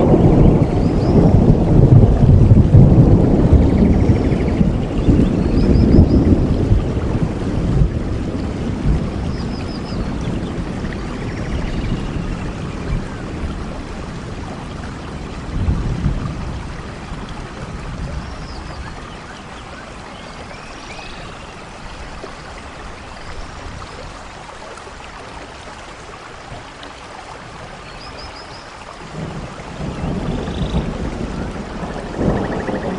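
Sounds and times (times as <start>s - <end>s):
rain hissing: 0.0s - 32.9s.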